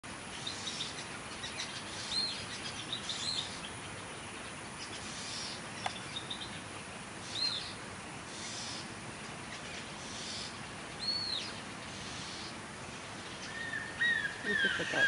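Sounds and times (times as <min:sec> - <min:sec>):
birds chirping: 0:00.1 - 0:15.0.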